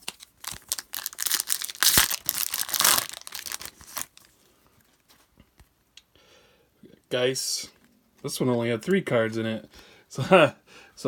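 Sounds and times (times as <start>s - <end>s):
foil wrapper crinkling and tearing: 0.0s - 4.3s.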